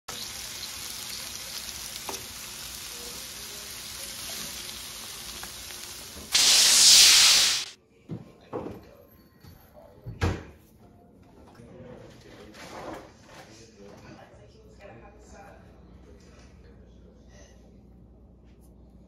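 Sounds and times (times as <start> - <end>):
food sizzling on a griddle: 0.1 - 7.8.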